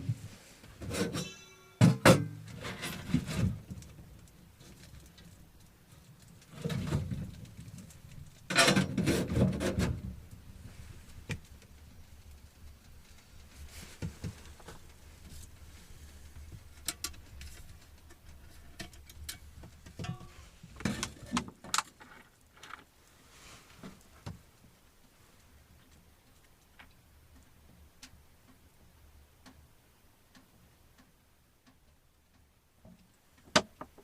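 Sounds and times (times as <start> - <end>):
rustling and scraping: 0.0 - 26.9
clicks and knocks of objects: 0.8 - 10.4, 16.3 - 22.9.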